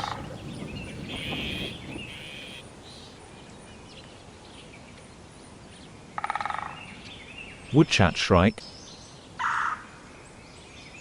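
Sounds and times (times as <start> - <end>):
raspy buzzing animal call: 1.1 - 2.7.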